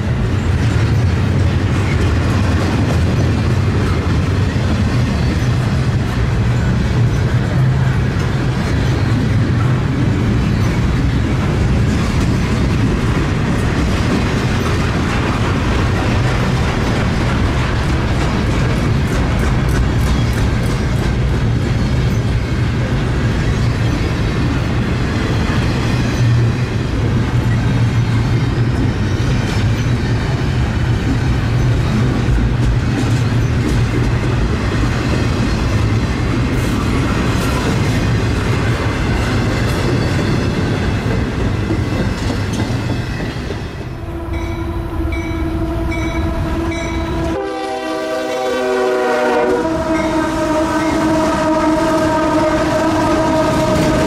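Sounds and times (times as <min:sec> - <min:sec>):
diesel locomotive engine rumble: 0:00.0 - 0:54.0
wheels clicking over rail joints: 0:00.2 - 0:43.9
locomotive air horn: 0:44.0 - 0:54.0.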